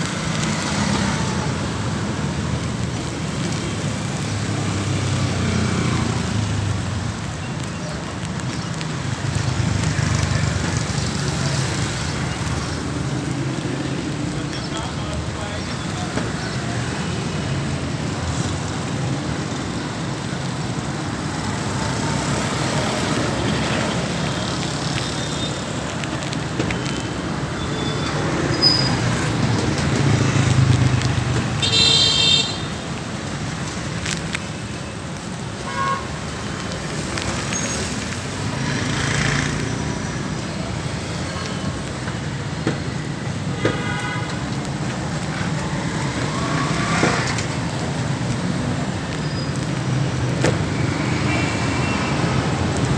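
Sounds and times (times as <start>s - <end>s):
street traffic noise: 0.0s - 52.9s
car horn tooting: 31.6s - 32.8s, 43.6s - 44.4s.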